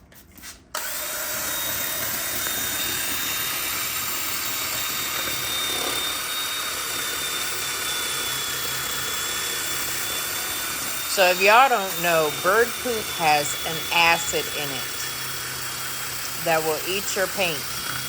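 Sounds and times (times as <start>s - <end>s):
cordless drill whining: 0.8s - 18.0s.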